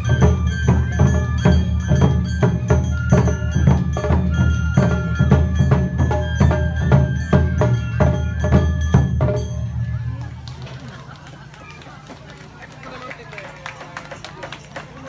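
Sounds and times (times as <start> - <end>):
pitched instruments: 0.0 - 10.2
ringing metal percussion: 0.0 - 10.4
festival drums: 0.0 - 15.0.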